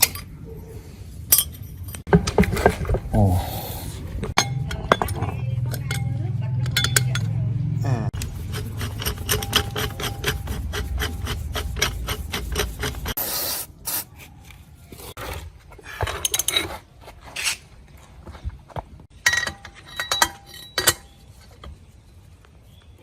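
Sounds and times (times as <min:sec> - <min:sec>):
rasping strokes on metal: 0:08.2 - 0:13.2
scrapes on metal: 0:08.2 - 0:13.2.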